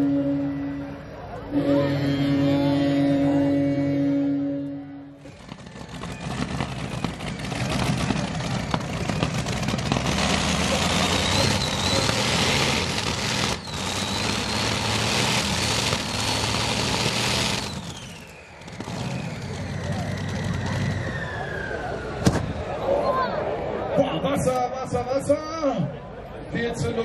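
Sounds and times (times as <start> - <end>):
tractor engine running hard: 5.1 - 21.5.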